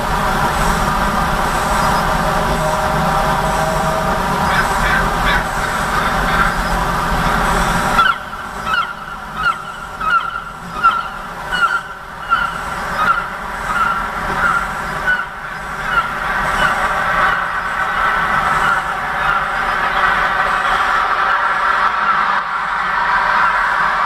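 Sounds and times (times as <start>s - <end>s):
street traffic rumble: 0.0s - 24.0s
bird chirping call: 8.0s - 17.8s.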